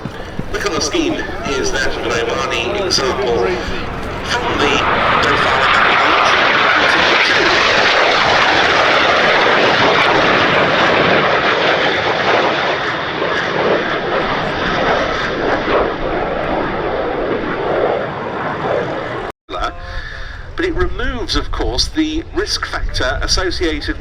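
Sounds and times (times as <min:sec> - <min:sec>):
jets passing: 0:00.0 - 0:19.3.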